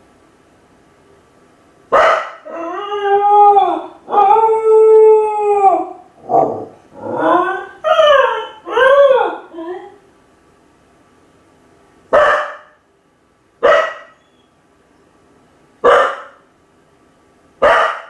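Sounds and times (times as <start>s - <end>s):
dog yelping: 2.0s - 4.6s, 5.7s - 10.0s, 12.2s - 12.7s, 13.6s - 14.5s, 15.9s - 16.4s, 17.6s - 18.0s
dog howling: 2.0s - 10.0s.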